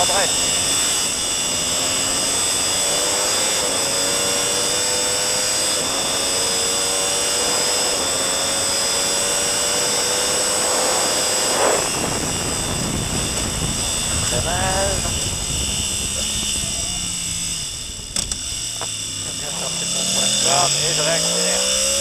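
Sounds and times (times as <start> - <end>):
motorcycle engine at full throttle: 0.0 - 22.0
wind rush: 10.2 - 19.3.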